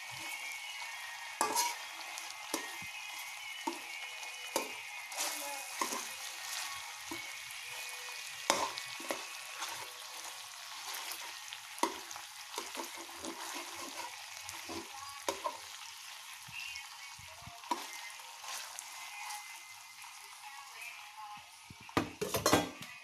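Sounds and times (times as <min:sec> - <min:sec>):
food sizzling in a pan: 0:00.0 - 0:23.0
utensil scraping a pan: 0:01.4 - 0:01.8, 0:12.6 - 0:15.6.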